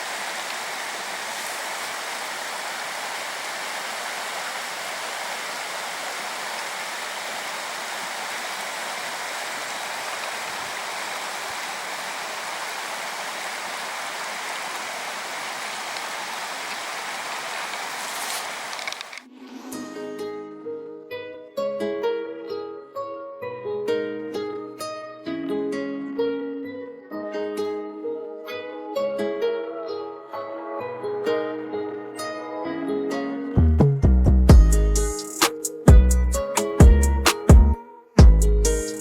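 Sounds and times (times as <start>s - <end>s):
mountain stream rushing: 0.0s - 19.2s.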